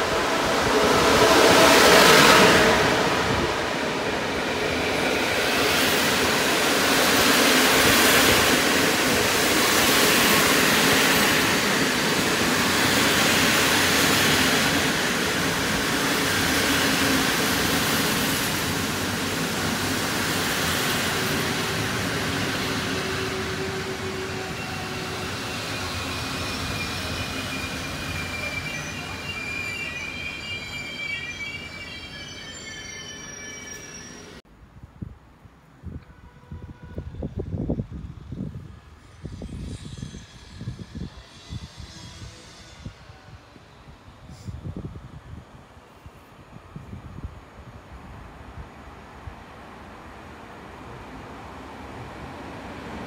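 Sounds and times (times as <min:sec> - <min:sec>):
passenger train rumbling past: 0:00.0 - 0:34.4, 0:36.0 - 0:53.0
high wheel squeal: 0:22.8 - 0:34.4, 0:39.0 - 0:43.4.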